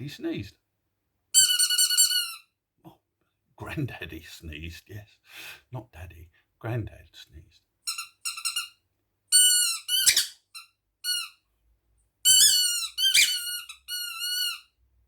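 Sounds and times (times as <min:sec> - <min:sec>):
squeaky toy squeaking: 0:01.3 - 0:02.5, 0:07.9 - 0:11.4, 0:12.2 - 0:14.8.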